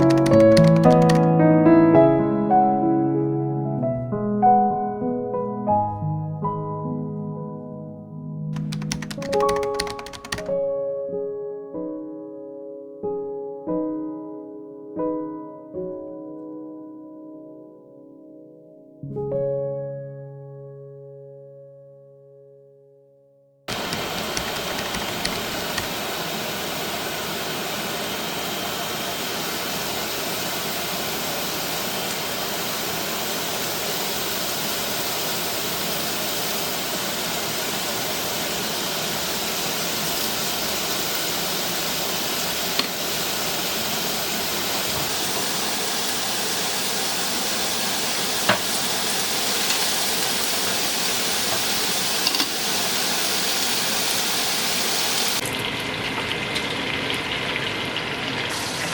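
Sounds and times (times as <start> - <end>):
sharp clicks: 0.0 - 1.3, 8.6 - 10.5, 23.7 - 26.0
steady hissing noise: 23.7 - 55.4.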